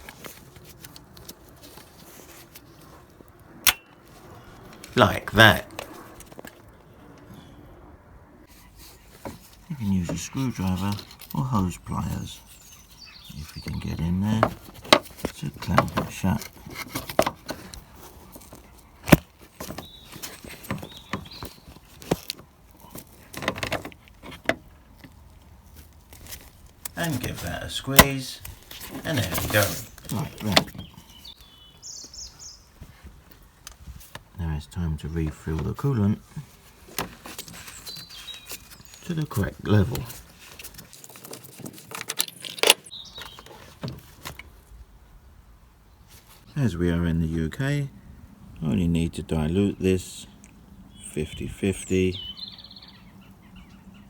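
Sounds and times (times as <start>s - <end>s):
tools clicking and rattling: 40.6s - 42.9s.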